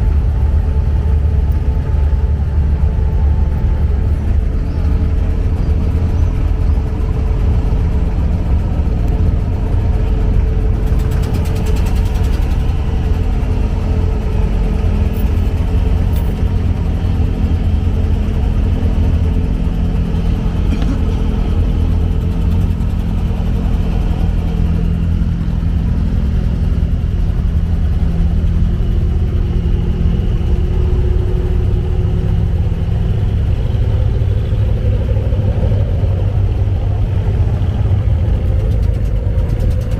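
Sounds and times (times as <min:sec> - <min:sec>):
boat diesel engine rumbling: 0:00.0 - 0:39.9.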